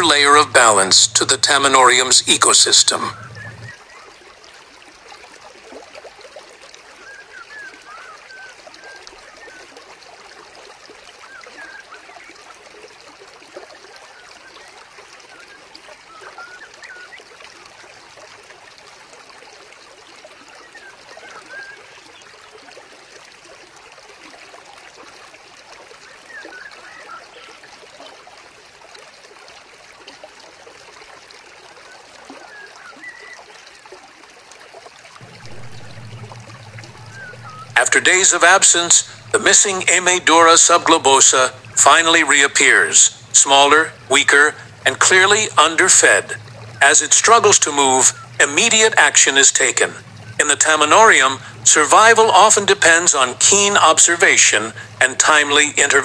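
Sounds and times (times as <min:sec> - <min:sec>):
small waterfall trickling: 0:00.0 - 0:56.0
water droplet plinks: 0:35.2 - 0:38.0.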